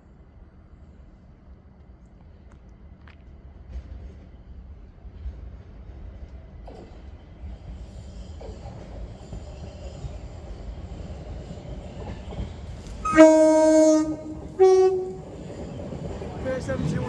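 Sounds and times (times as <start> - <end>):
low rumble of train: 0.0 - 17.0
train horn two-tone: 13.0 - 15.4.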